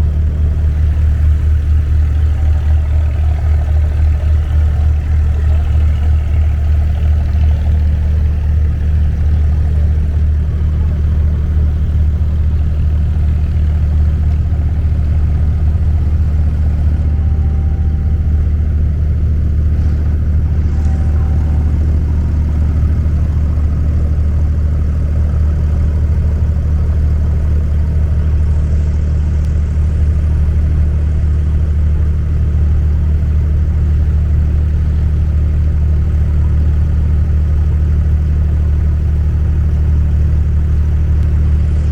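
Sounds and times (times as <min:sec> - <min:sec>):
boat engine droning: 0:00.0 - 0:41.9.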